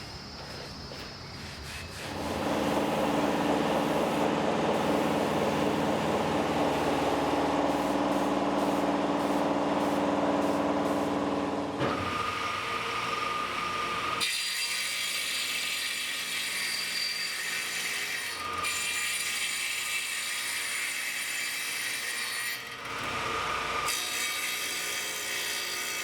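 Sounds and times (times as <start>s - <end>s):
power tool motor running: 2.0s - 14.2s.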